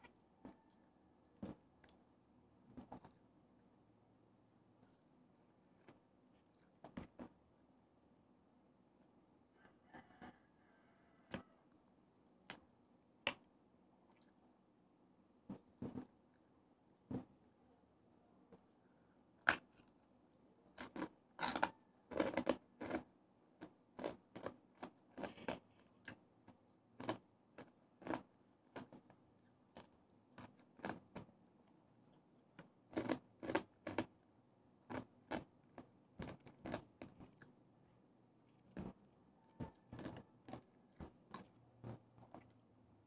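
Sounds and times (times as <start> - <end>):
crunching of crispy food: 32.9 - 34.1.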